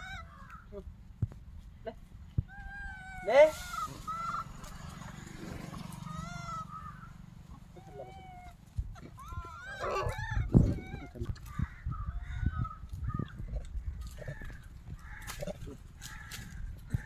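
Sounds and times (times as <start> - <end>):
monkeys squealing calls: 0.0 - 0.4, 2.5 - 13.3.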